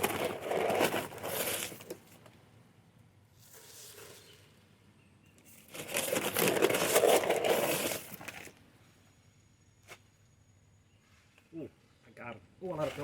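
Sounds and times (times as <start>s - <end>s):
bag crinkling and rustling: 0.0s - 2.0s, 5.6s - 8.5s.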